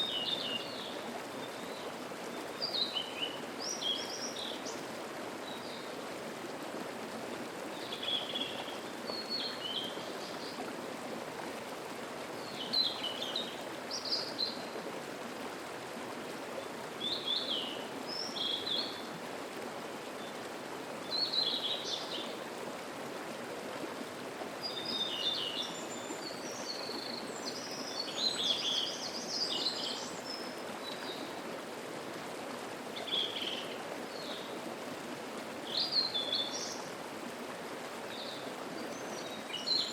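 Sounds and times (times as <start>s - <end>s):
songbirds chirping: 0.0s - 6.9s, 7.5s - 14.8s, 16.5s - 19.2s, 24.6s - 32.3s, 32.9s - 34.9s, 35.6s - 39.9s
mountain stream flowing: 0.0s - 39.9s.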